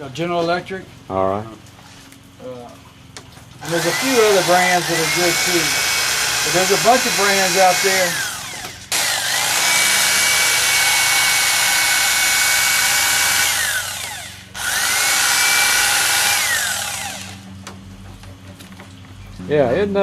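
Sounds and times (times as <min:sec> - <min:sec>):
electric fillet knife motor whine: 0:03.6 - 0:17.6.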